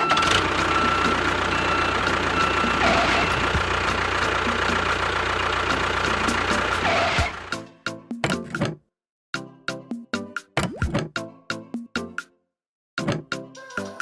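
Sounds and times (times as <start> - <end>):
small engine running: 0.0 - 7.6.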